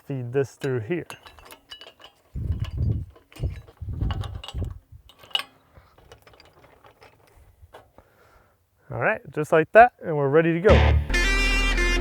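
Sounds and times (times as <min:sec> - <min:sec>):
metal rigging clinking: 0:00.0 - 0:08.0.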